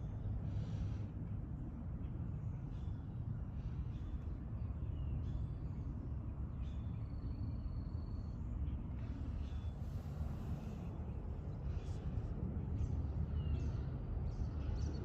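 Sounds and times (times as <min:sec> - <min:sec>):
faint birds chirping: 0:00.0 - 0:15.0
steady low rumble: 0:08.2 - 0:15.0.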